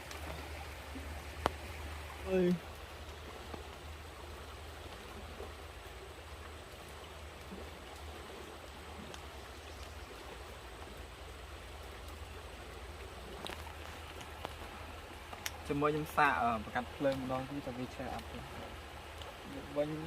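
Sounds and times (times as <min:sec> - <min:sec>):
flowing stream rushing: 0:00.0 - 0:20.0
faint clicks: 0:08.7 - 0:10.0.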